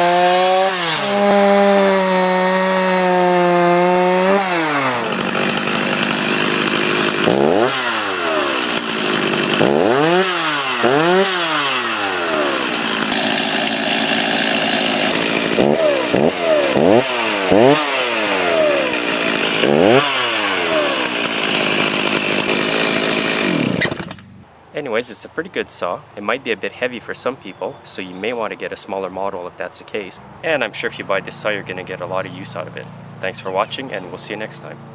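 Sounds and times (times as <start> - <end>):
chainsaw revving: 0.0 - 24.4.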